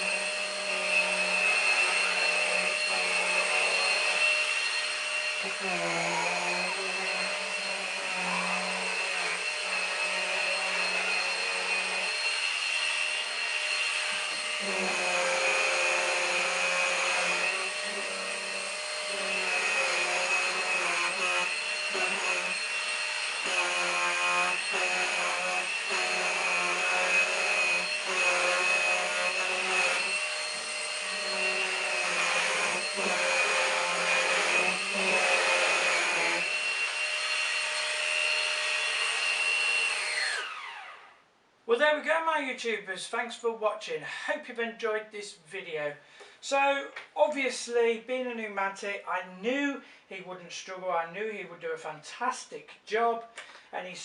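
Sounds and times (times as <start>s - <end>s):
vacuum cleaner motor whine: 0.0s - 41.1s.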